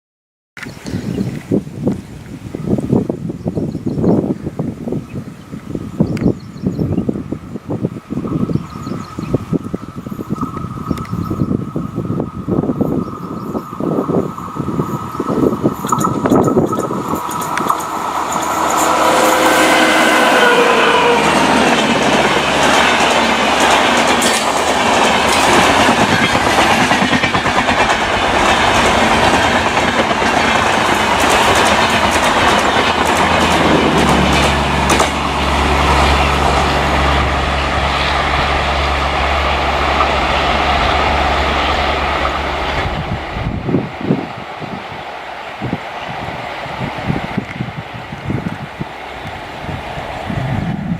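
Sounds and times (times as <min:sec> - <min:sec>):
train wheels rushing on rail: 0:06.5 - 0:50.9
clickety-clack over rail joints: 0:15.0 - 0:19.4, 0:20.4 - 0:43.5.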